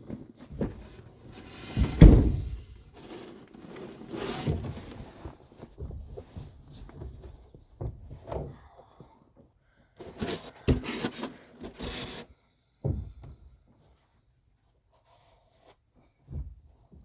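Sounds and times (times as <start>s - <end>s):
short knock: 1.8s - 2.7s.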